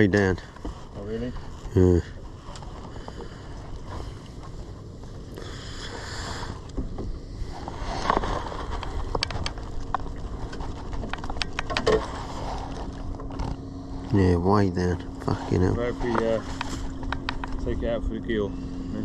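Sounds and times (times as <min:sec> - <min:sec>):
wind rumbling on microphone: 0:00.0 - 0:14.2, 0:15.0 - 0:19.0
sea noise: 0:00.0 - 0:19.0
small sharp clicks and knocks: 0:08.8 - 0:12.0, 0:16.5 - 0:17.6.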